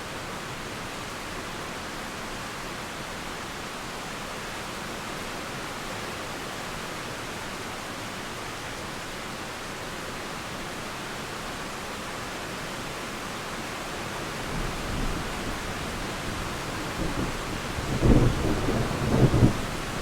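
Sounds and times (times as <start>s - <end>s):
rain falling: 0.1s - 20.0s
thunder rumble: 16.9s - 20.0s.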